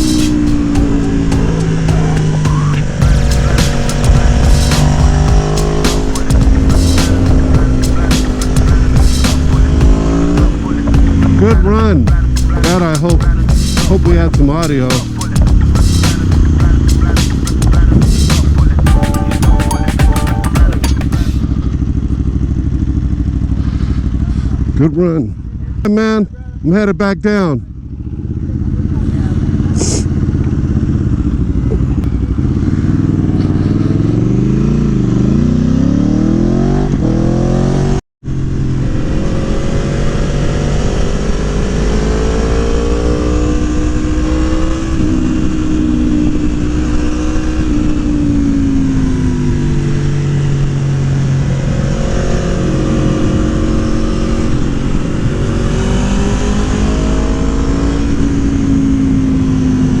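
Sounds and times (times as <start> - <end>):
motorcycle engine revving: 0.0 - 60.0.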